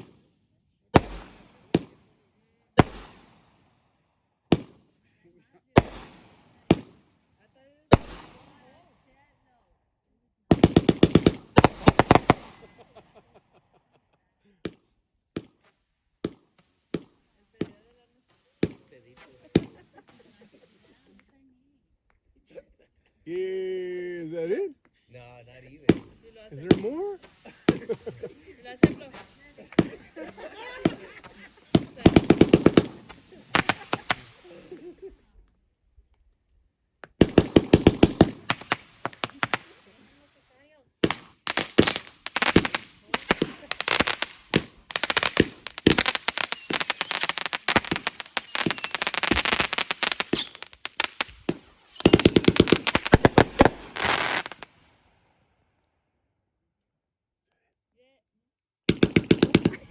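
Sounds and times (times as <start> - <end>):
fireworks bangs: 0.0 - 0.3, 1.0 - 3.7, 4.5 - 5.1, 5.7 - 7.2, 7.9 - 8.8, 10.5 - 13.2, 16.2 - 21.2, 25.8 - 35.2, 37.0 - 54.9, 58.9 - 59.9
fireworks crackle: 0.0 - 0.3, 0.9 - 3.7, 4.5 - 8.9, 10.5 - 13.4, 15.4 - 21.4, 25.8 - 35.4, 37.0 - 55.0, 58.9 - 59.9.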